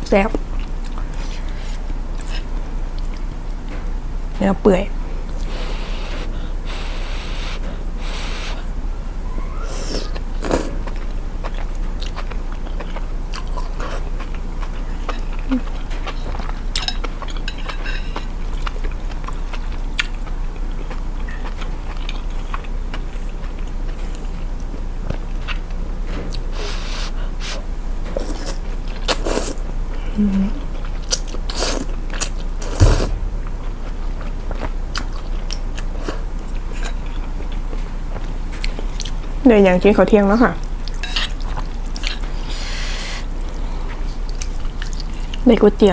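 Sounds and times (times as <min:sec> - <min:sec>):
person chewing food: 0:10.1 - 0:24.3
steady low hum: 0:32.6 - 0:35.5.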